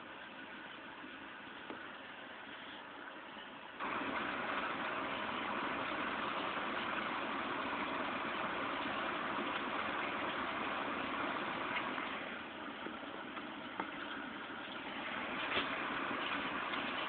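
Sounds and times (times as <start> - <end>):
heavy rain falling: 3.8 - 17.0.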